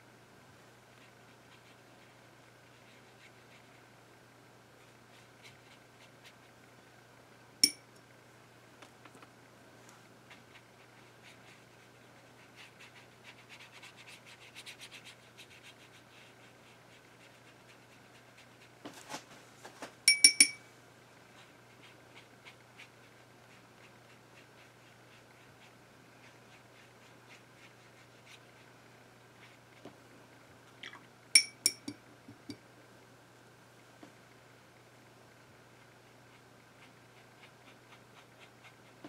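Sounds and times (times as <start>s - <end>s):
paintbrush scratching on paper: 0.9s - 3.8s, 10.3s - 18.8s, 21.4s - 28.8s, 36.3s - 39.0s
brush clinking on water jar: 20.1s - 20.6s, 31.4s - 32.6s.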